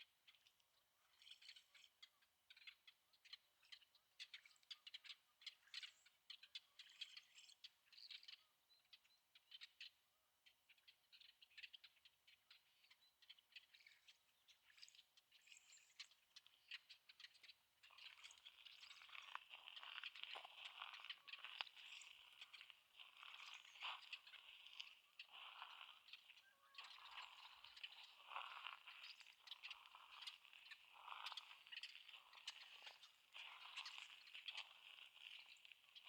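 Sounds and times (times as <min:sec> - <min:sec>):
small birds chirping: 0:00.0 - 0:36.0
footsteps on sandy gravel: 0:19.2 - 0:26.2, 0:26.8 - 0:35.7.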